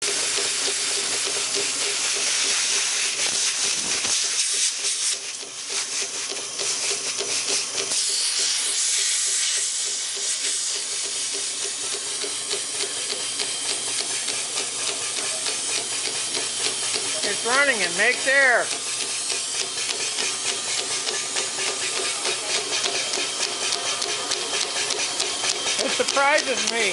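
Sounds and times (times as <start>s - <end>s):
air compressor hissing: 0.0s - 26.9s
low mechanical hum: 0.0s - 26.9s.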